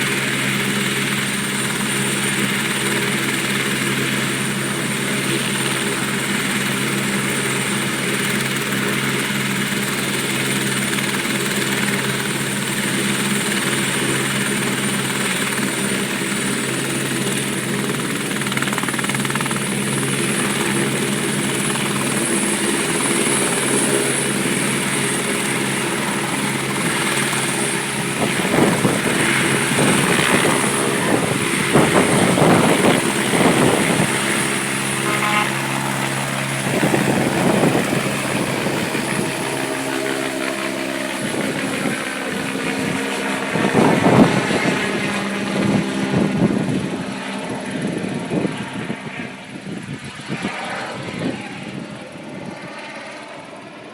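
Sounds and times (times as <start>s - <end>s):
helicopter turbine and rotor: 0.0s - 53.9s
rushing gusts: 17.2s - 52.5s.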